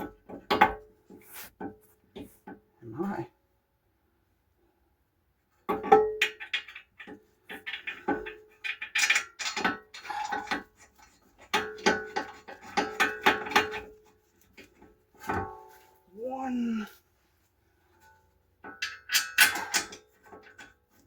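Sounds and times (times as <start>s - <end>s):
metal tools clinking and clanking: 18.0s - 20.8s.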